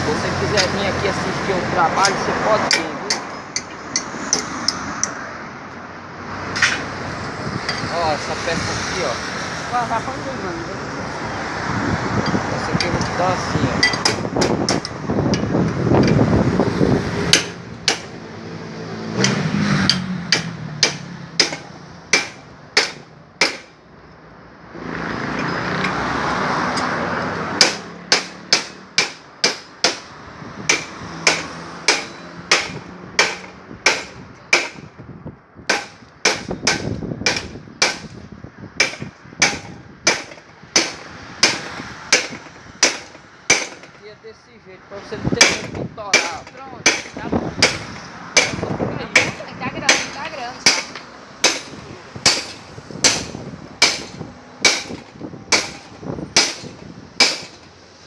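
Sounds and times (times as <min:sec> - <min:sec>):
hammer striking steel: 0:02.0 - 0:05.2, 0:13.8 - 0:15.0, 0:17.3 - 0:18.2, 0:19.2 - 0:23.8, 0:27.6 - 0:30.1, 0:30.7 - 0:34.9, 0:35.7 - 0:38.2, 0:38.8 - 0:44.0, 0:45.4 - 0:57.6.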